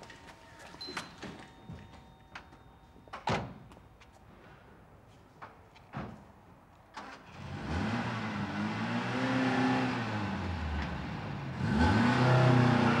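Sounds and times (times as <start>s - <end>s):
car engine accelerating: 7.4s - 13.0s.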